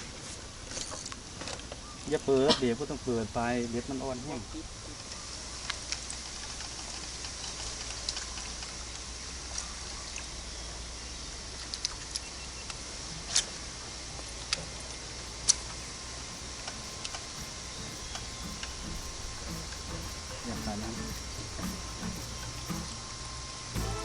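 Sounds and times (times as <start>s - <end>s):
high hiss: 15.2s - 24.0s
sharp clicks and taps: 15.3s - 23.0s.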